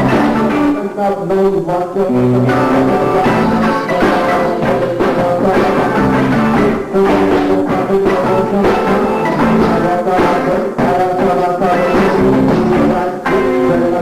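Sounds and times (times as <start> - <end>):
live funk band playing: 0.0 - 0.8, 2.0 - 14.0.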